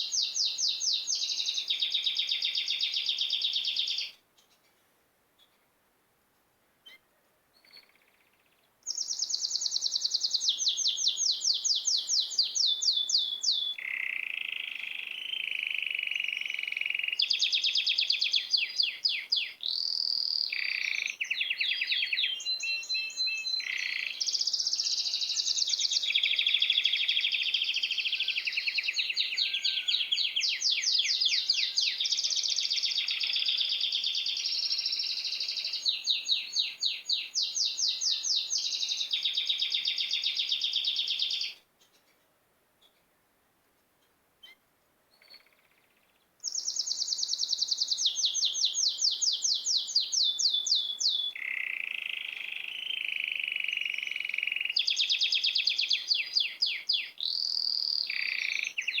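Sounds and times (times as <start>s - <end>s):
songbird singing fast trills: 0.0s - 4.6s, 7.6s - 42.1s, 45.2s - 59.0s.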